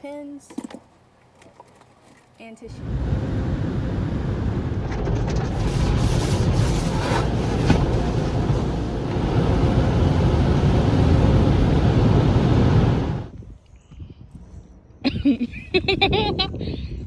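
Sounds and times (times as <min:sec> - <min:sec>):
car interior low rumble: 0:02.7 - 0:13.4.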